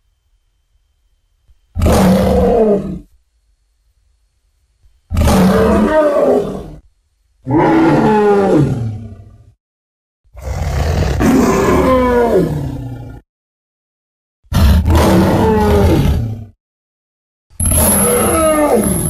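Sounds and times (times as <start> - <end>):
animal-like roars: 1.8 - 3.2, 5.1 - 6.8, 7.4 - 9.6, 10.4 - 13.2, 14.5 - 16.6, 17.6 - 19.0.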